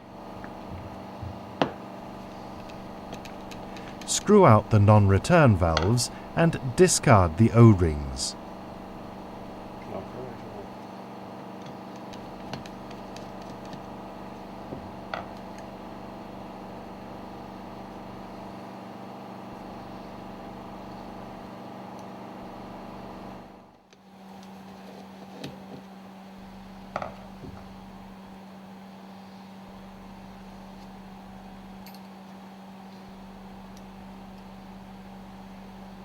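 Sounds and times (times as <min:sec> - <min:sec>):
machinery hum: 0:02.1 - 0:10.6.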